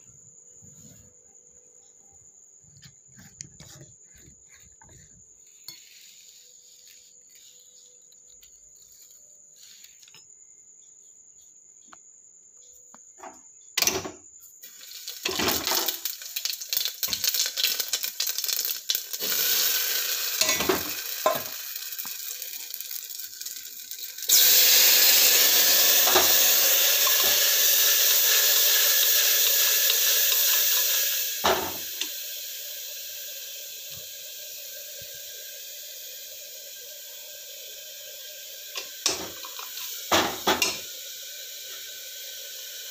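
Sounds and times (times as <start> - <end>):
sizzling hiss: 3.7 - 10.4, 13.8 - 42.9
metal utensils clinking on pan: 20.4 - 21.6, 38.8 - 40.9.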